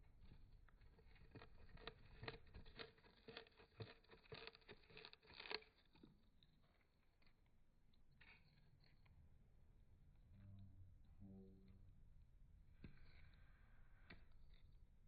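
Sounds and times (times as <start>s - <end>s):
bird beak crunching cardboard: 1.0s - 5.8s.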